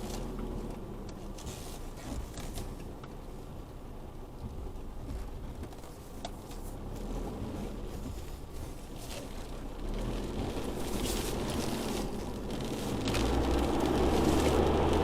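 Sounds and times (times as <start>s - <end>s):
truck engine running at low revs: 0.0s - 15.0s.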